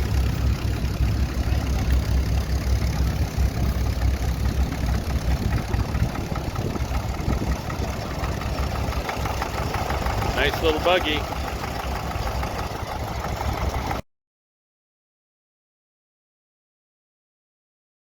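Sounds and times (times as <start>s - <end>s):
crawler engine idling: 0.0s - 14.0s
wind buffeting microphone: 3.2s - 10.4s.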